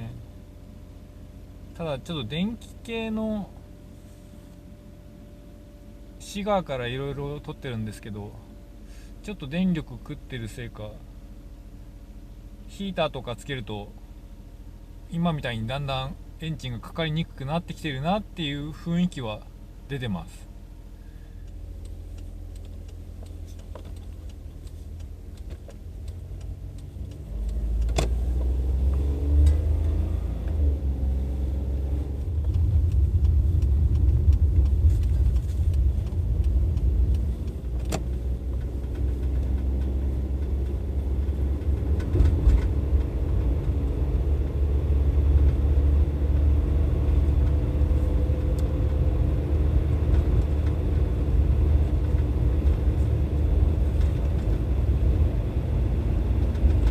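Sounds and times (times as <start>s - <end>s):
car engine rumbling: 0.0s - 56.9s
sharp clicks: 32.2s - 40.8s.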